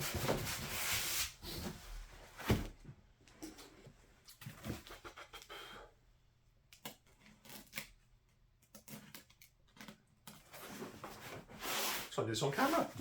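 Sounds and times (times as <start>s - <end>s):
scratching and rustling: 8.7s - 13.0s.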